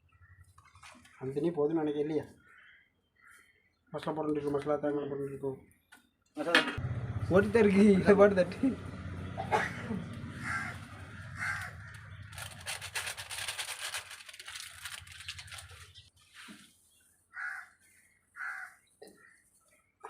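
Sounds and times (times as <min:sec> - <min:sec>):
crows cawing: 0:02.3 - 0:03.5, 0:09.3 - 0:12.8, 0:17.3 - 0:19.5
low hum: 0:06.8 - 0:12.8.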